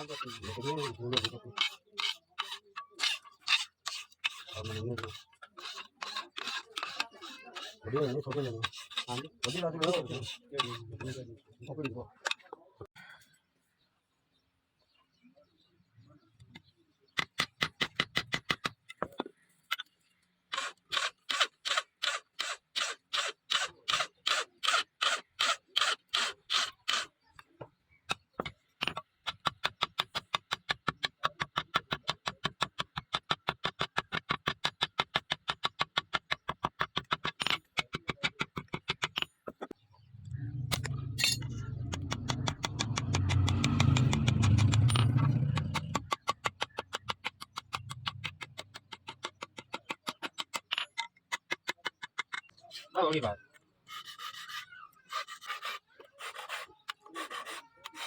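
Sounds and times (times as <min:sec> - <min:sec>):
low continuous rumbling: 0:40.0 - 0:42.2
knife blade scraping: 0:40.8 - 0:41.6.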